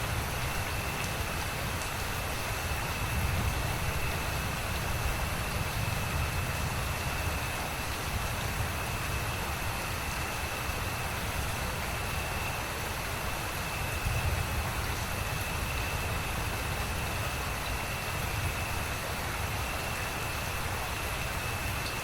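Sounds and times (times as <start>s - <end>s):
steady rain: 0.0s - 22.0s.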